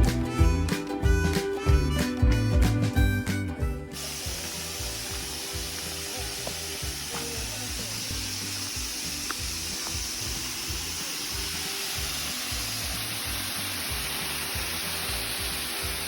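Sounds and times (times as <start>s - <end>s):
background music: 0.0s - 16.0s
stream water flowing: 4.0s - 16.0s.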